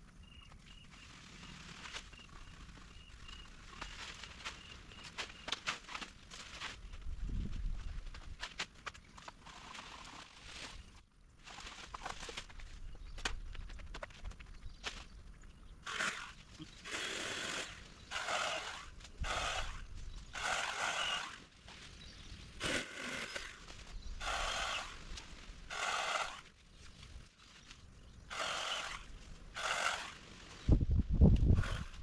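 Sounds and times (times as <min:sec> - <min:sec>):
hand saw cutting wood: 0:15.9 - 0:21.4, 0:22.6 - 0:25.0, 0:25.7 - 0:26.5, 0:28.3 - 0:30.2.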